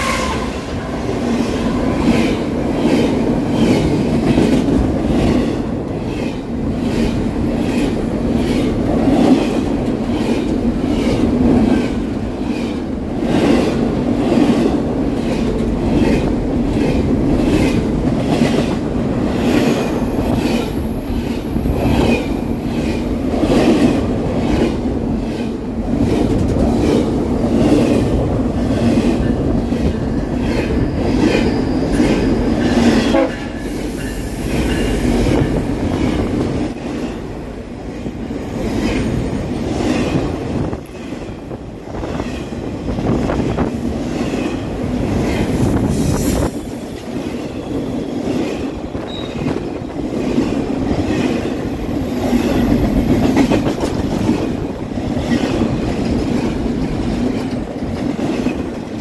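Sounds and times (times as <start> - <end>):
trains rumbling and rattling: 0.0 - 59.0
wheels clacking over rail joints: 2.0 - 35.6
high wheel squeal: 28.4 - 40.7.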